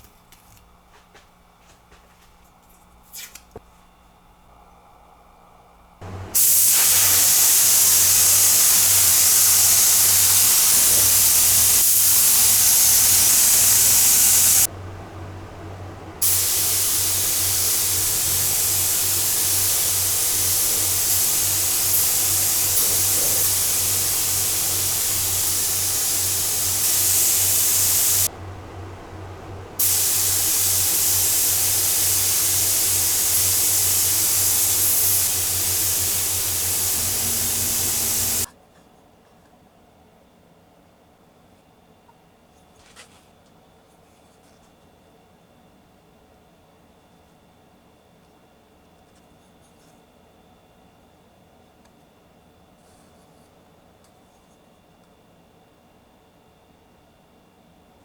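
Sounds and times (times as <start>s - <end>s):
paint sprayer hissing: 6.0s - 38.5s
low steady hum: 11.0s - 38.5s.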